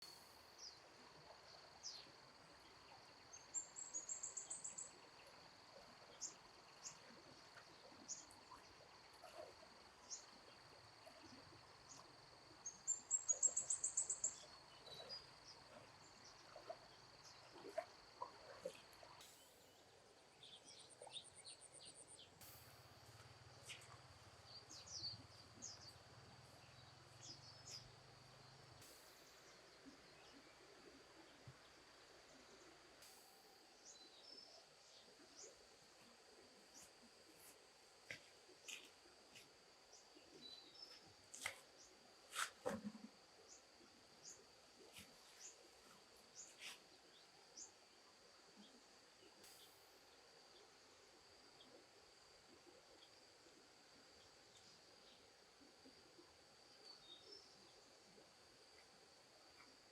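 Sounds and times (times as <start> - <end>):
bird chirps: 6.1 - 30.6
high insect drone: 21.0 - 59.9.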